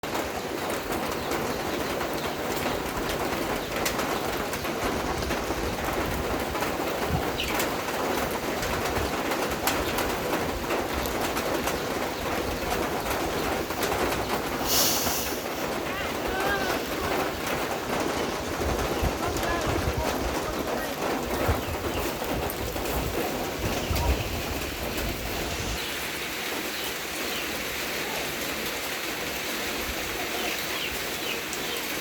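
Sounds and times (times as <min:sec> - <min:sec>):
rain falling: 0:00.0 - 0:32.0
bird calling: 0:11.2 - 0:22.5
high hiss: 0:14.6 - 0:15.7.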